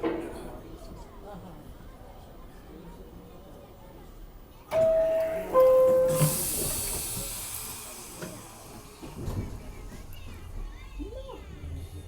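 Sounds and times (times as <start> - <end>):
two-tone door chime: 4.7 - 6.7
train air hiss: 5.9 - 9.9.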